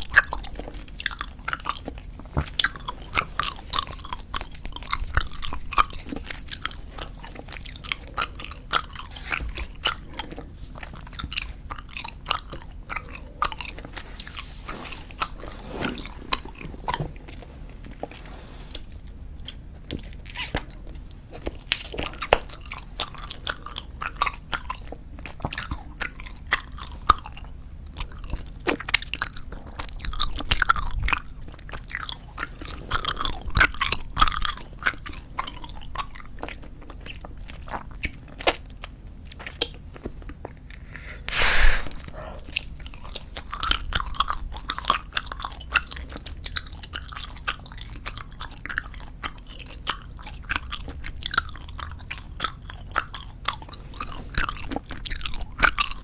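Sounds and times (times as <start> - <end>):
bubblegum chewing: 39.4 - 42.9.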